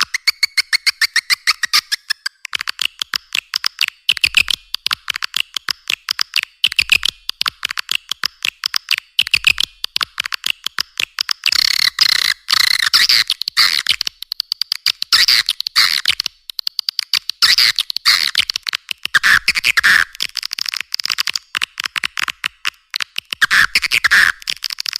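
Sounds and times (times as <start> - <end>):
swiftlet clicking chatter: 0.0 - 24.9.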